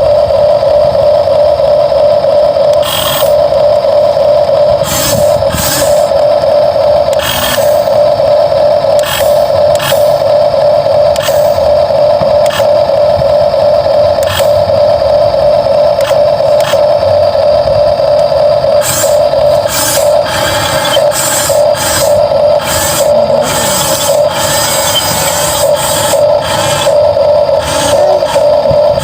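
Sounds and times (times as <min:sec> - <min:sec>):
small electric motors whining: 0:00.0 - 0:29.0
hissy scraping bursts: 0:04.8 - 0:06.1, 0:18.8 - 0:28.5.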